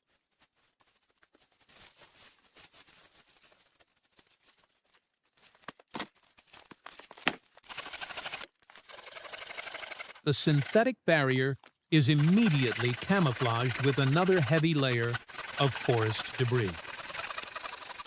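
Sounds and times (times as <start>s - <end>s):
tarp rustling and crinkling: 0.0s - 7.1s.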